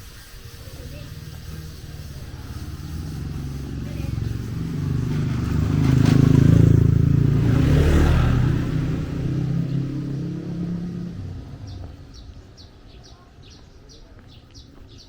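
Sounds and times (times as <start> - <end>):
vehicle engine passing by: 0.6 - 13.6
bird chirping: 11.5 - 15.0.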